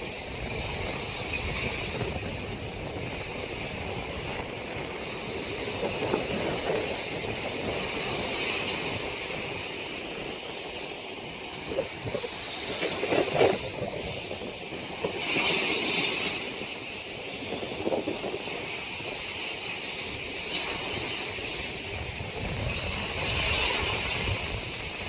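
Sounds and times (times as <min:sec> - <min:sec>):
storm wind howling: 0:00.0 - 0:25.0
rough water hissing: 0:10.9 - 0:19.6.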